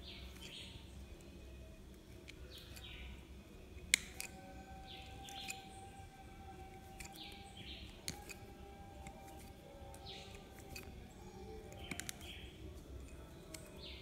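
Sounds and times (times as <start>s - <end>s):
faint bird chirps: 4.1s - 14.0s.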